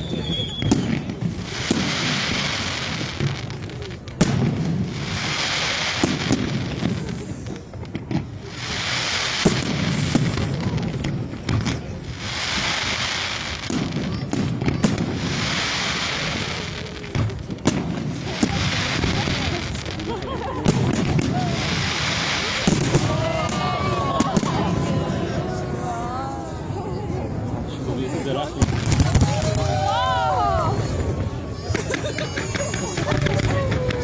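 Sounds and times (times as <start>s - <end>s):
hissing crackle of fireworks: 0.0s - 34.0s
firework shells bursting: 28.6s - 29.8s.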